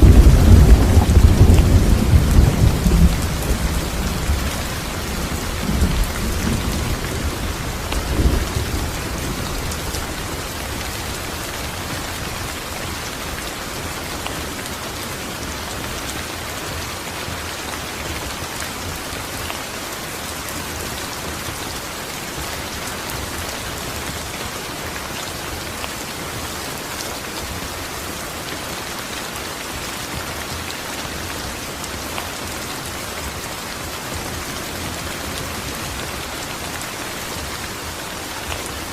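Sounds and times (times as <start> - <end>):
thunder rumbling: 0.0 - 11.6
rain falling: 0.0 - 38.9.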